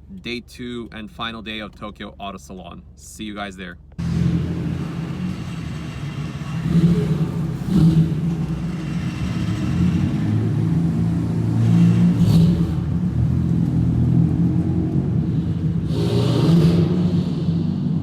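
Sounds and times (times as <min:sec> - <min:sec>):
car engine running: 0:03.6 - 0:15.9.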